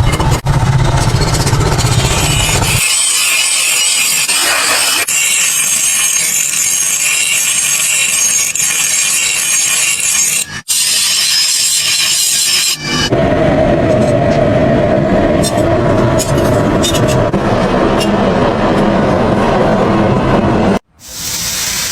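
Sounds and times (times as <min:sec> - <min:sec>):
deep machine sound: 0:00.0 - 0:02.8, 0:13.1 - 0:20.8
abrasive tool grinding steel: 0:00.0 - 0:13.1.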